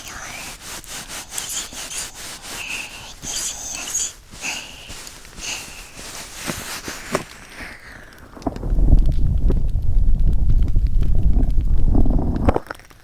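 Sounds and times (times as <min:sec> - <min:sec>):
close breathy whispering: 0:00.0 - 0:08.3.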